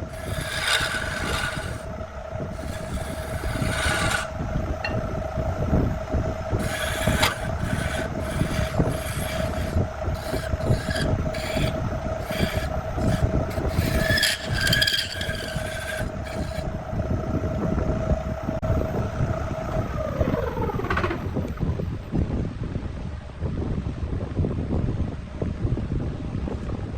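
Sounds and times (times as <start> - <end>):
power tool abrading wood: 0.0 - 5.1, 6.5 - 16.9
sharp rasping bursts: 0.0 - 5.1, 6.6 - 16.8
motor spinning down: 0.0 - 22.0.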